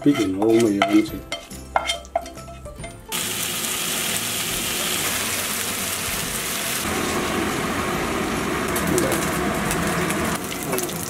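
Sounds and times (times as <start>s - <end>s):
fish sizzling in hot oil: 3.1s - 11.0s.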